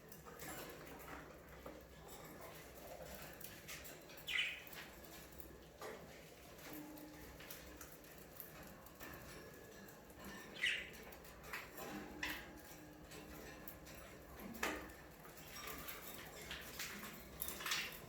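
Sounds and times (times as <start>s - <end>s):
budgerigars chirping and squawking: 4.1s - 4.9s, 10.3s - 12.6s
sharp bird calls: 4.3s - 4.7s, 10.5s - 11.0s.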